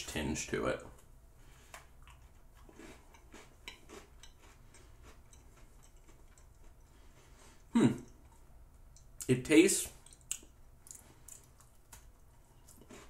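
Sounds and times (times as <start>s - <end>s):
crunching cookie being chewed: 1.8s - 7.3s, 10.0s - 13.0s.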